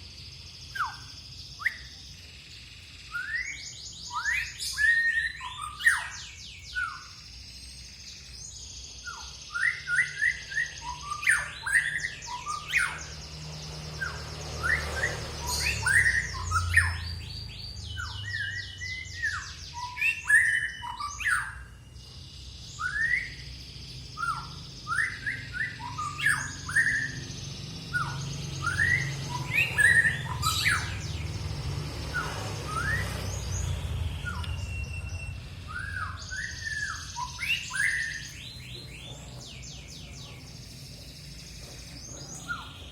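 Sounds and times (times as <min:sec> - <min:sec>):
songbird singing: 0:00.0 - 0:42.9
steady low hum: 0:23.4 - 0:42.9.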